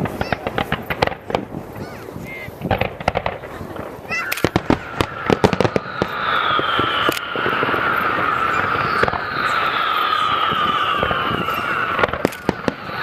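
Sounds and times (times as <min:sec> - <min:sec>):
firework bangs and cracks: 0:00.0 - 0:13.0
firework crackling: 0:00.0 - 0:13.0
falling whistling tone: 0:04.1 - 0:13.0.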